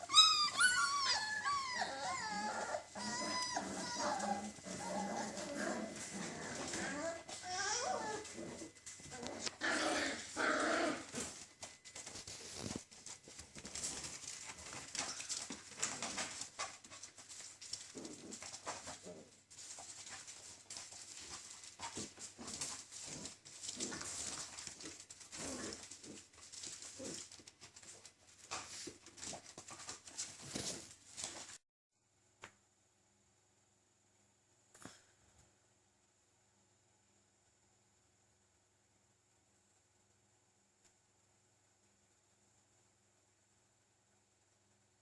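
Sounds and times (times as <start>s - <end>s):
puppies vocalising: 0.0s - 8.6s
small clicks and rustles: 11.1s - 31.6s.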